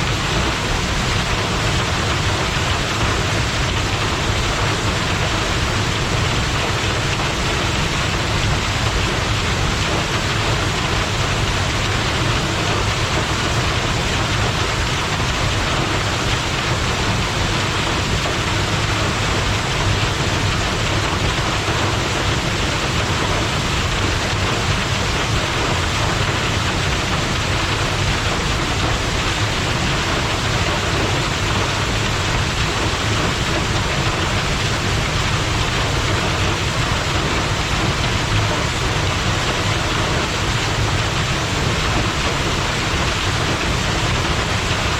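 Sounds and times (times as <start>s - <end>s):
waterfall pouring: 0.1s - 44.9s.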